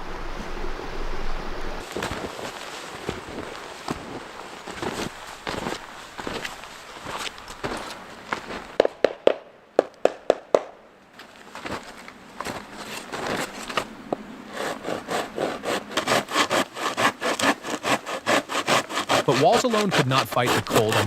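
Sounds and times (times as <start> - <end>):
hand saw cutting through log: 14.5 - 21.0
sharp wooden knocks: 16.0 - 21.0.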